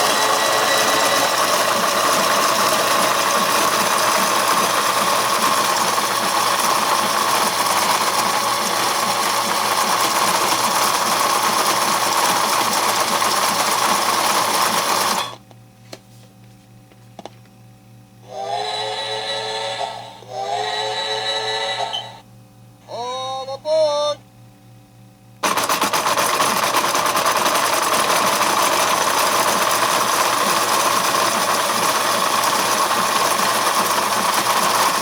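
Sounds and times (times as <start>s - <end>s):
toy train motor whirring: 0.0s - 15.4s, 18.3s - 22.2s
electronic tone: 20.8s - 22.2s.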